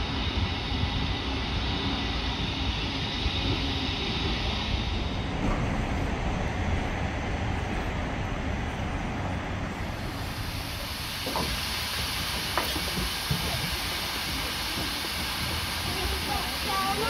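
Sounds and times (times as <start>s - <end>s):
steam locomotive hissing: 9.8s - 17.0s.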